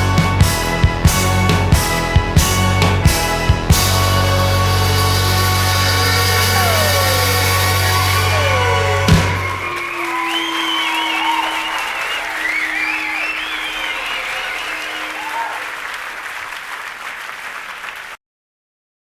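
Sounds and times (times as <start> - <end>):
audience applauding and cheering: 0.0 - 18.2
high shouts or whistles: 6.4 - 15.8.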